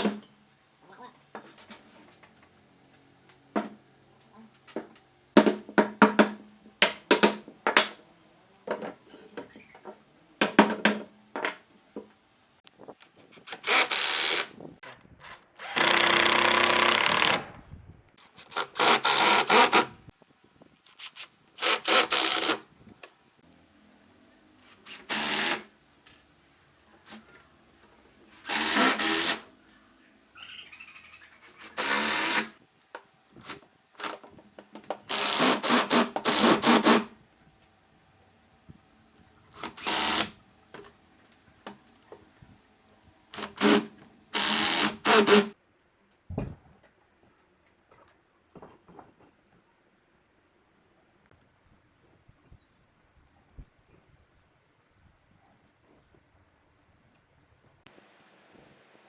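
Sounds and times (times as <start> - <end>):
power tool running: 15.6 - 17.4, 18.5 - 20.0, 21.1 - 22.6, 24.8 - 25.7, 28.4 - 29.5, 31.6 - 32.5, 35.1 - 37.1, 39.6 - 40.4, 43.4 - 45.5.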